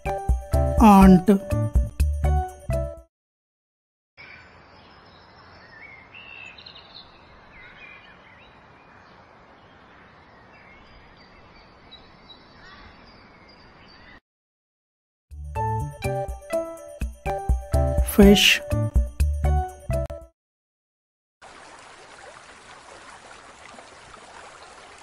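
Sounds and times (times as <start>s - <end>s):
birds chirping: 4.2s - 14.2s.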